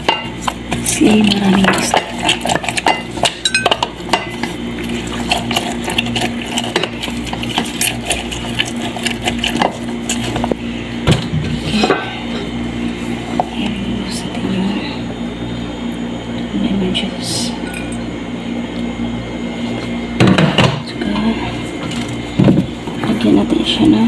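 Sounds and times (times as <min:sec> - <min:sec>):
utensils clinking against a dish: 0:00.0 - 0:10.3, 0:17.6 - 0:18.0.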